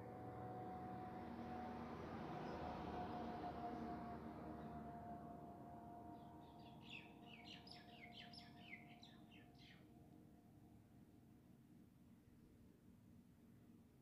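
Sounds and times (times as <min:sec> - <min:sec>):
bird chirping: 0:06.4 - 0:09.8.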